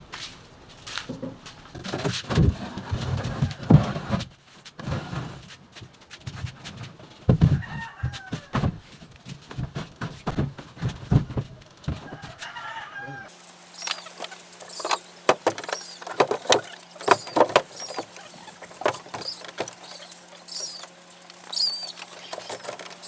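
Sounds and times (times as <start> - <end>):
knocks and thumps: 7.2 - 12.4, 13.8 - 23.0
chickens clucking: 12.4 - 23.0.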